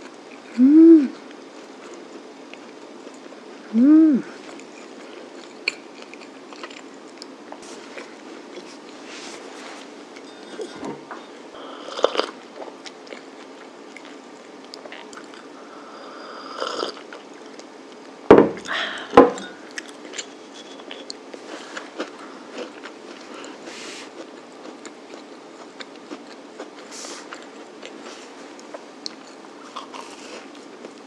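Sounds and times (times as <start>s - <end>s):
person chewing: 4.3s - 15.6s, 19.7s - 31.0s
ceramic mug knocking on table: 18.3s - 18.6s, 19.2s - 19.4s.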